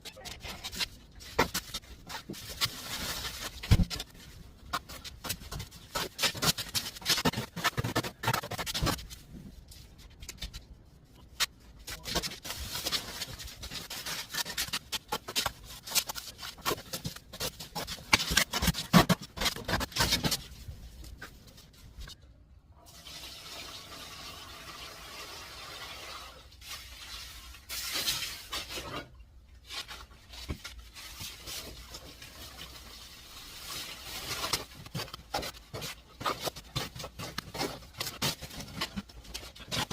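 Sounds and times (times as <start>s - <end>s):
mortar scraping and slapping: 1.4s - 9.1s, 33.7s - 39.9s.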